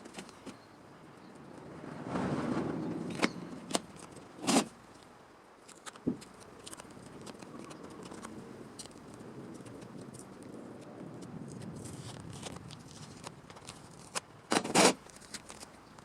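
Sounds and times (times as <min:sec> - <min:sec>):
rustle: 0:00.0 - 0:16.0
faint ticks: 0:04.9 - 0:14.3.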